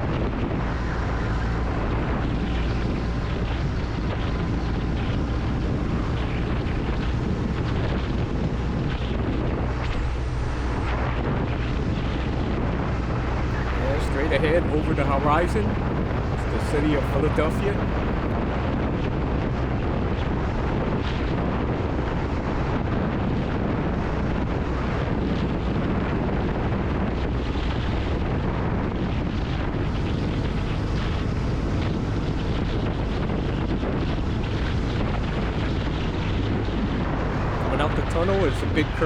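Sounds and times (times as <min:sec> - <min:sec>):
wind rushing over microphone: 0:00.0 - 0:39.0
motorcycle engine droning: 0:13.5 - 0:18.3, 0:37.3 - 0:39.0.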